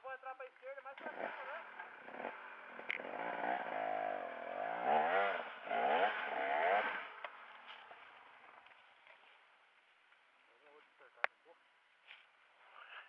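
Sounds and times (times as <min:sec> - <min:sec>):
dirt bike engine revving: 0:00.8 - 0:09.5.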